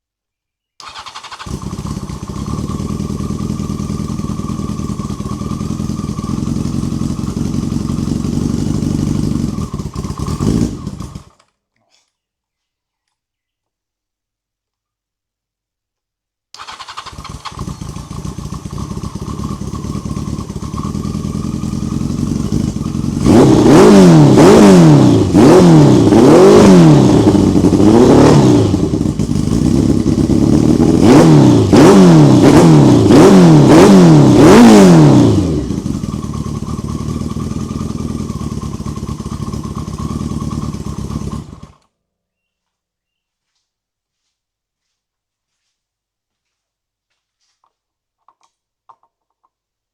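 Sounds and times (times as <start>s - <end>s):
motorcycle engine revving: 0.8s - 11.5s, 16.6s - 41.9s.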